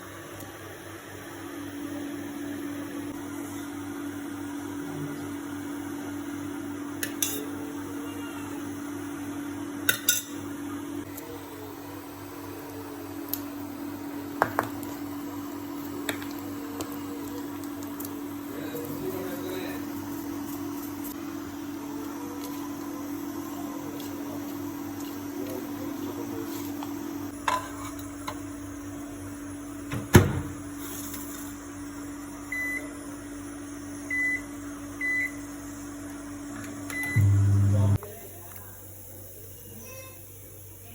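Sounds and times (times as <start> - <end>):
microwave door knocking shut: 29.9 - 30.6
steady electrical hum: 35.8 - 40.9
low hum: 36.9 - 38.0.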